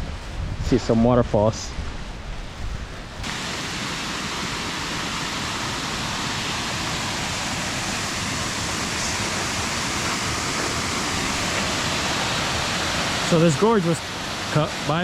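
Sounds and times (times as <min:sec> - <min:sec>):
water rushing in a creek: 0:03.2 - 0:15.0.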